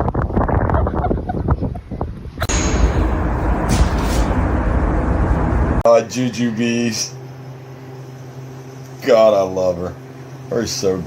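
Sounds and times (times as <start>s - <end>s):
wind on microphone: 0.0s - 2.6s.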